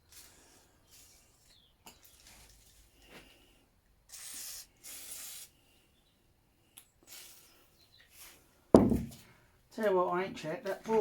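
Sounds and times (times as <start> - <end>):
aerosol spray hissing: 4.1 - 5.5.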